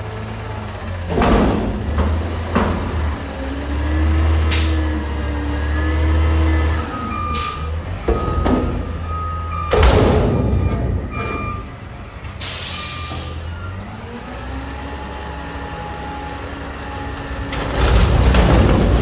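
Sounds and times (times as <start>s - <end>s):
garbage truck diesel engine: 0.0s - 19.0s
high beeping: 6.8s - 11.8s
air brake hiss: 12.4s - 13.5s.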